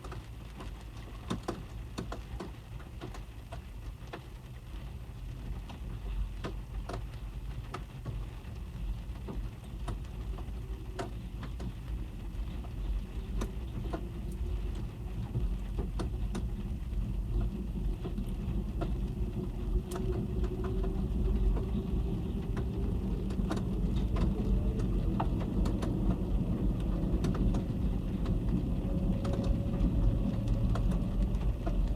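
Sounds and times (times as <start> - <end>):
rain tapping on car roof: 0.0 - 31.9
low rumble: 10.3 - 31.9.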